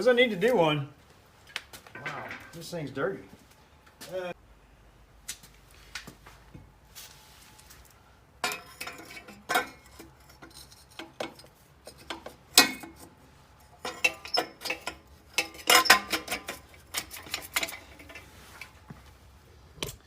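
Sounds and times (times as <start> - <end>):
metal exhaust pipes clanking: 8.4 - 19.0.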